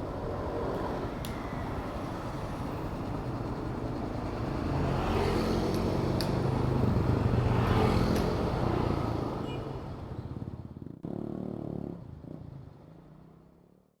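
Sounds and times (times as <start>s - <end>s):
road noise: 0.0s - 13.8s.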